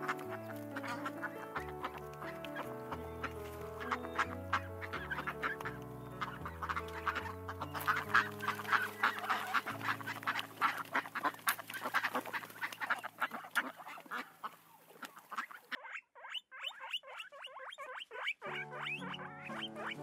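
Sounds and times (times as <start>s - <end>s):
soft background music: 0.0s - 14.2s, 18.4s - 20.0s
waterfowl honking and quacking: 0.0s - 20.0s.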